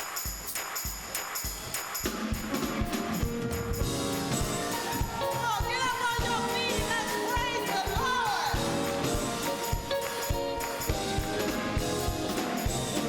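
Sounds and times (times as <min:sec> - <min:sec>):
drum beat: 0:00.0 - 0:13.0
tambourine jingling: 0:00.0 - 0:13.0
gospel band playing: 0:02.0 - 0:13.0
voices singing: 0:04.6 - 0:13.0.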